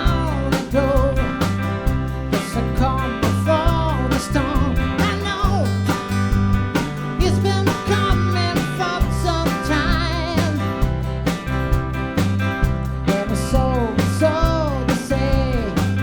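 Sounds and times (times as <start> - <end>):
band playing country-rock song: 0.0 - 16.0.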